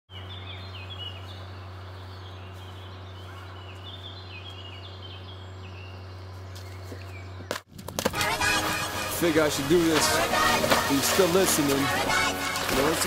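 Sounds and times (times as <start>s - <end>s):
small bird chirping song: 0.1s - 7.6s
steady low hum: 0.1s - 7.7s.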